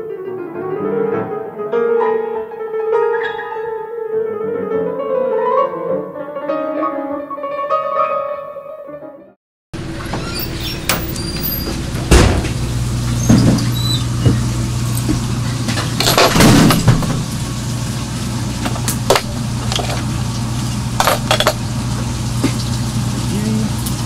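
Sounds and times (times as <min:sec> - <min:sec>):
low mechanical hum: 0:09.8 - 0:24.0.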